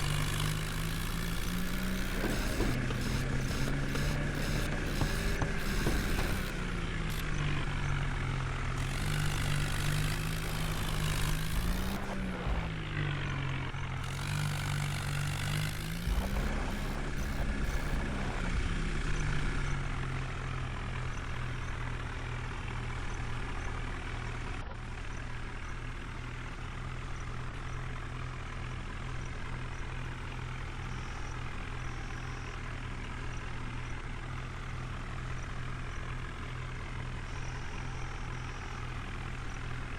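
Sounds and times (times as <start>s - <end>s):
tractor diesel engine: 0.0s - 39.9s.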